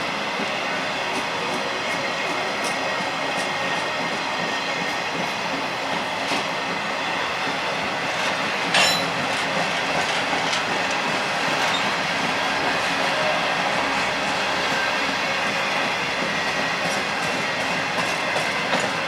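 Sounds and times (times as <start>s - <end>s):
freight train wheels clacking: 0.0s - 19.0s.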